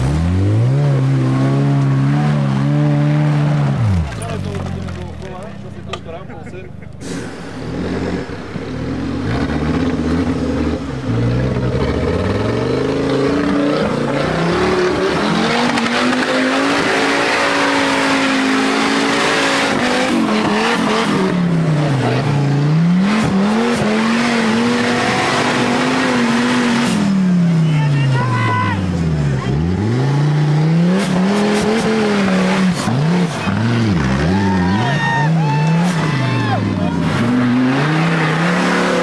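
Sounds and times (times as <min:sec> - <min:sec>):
off-road engine revving: 0:00.0 - 0:39.0
loud rushing noise: 0:07.0 - 0:10.6.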